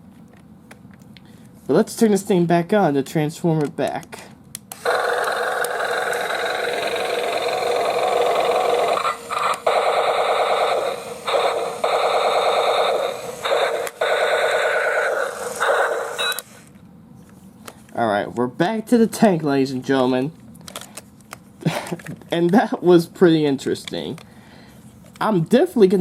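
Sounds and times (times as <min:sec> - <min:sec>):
toy electronic battle sound effects: 0:04.8 - 0:16.5.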